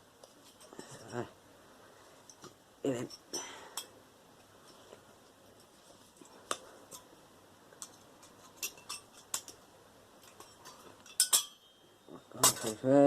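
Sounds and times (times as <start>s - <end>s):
metal clinks: 10.3s - 13.0s.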